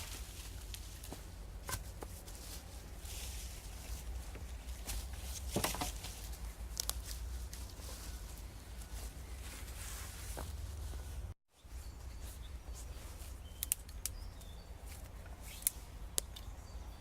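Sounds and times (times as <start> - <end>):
rustling of sticks and leaves: 0.0 - 17.0
dead wood snapping: 13.6 - 14.5.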